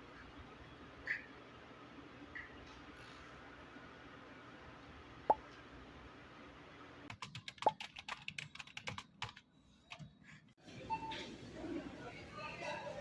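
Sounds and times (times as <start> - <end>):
rapid irregular clicks: 7.1 - 10.0.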